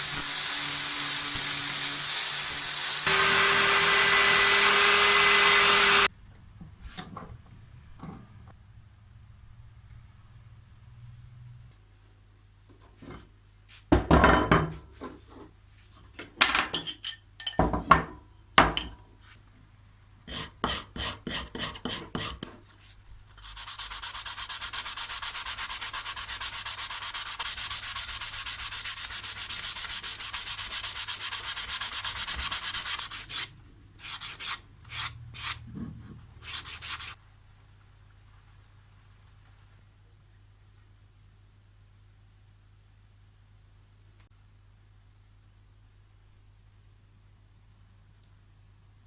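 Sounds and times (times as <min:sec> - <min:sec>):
knocks and scrapes: 0:12.7 - 0:14.1, 0:35.4 - 0:36.6.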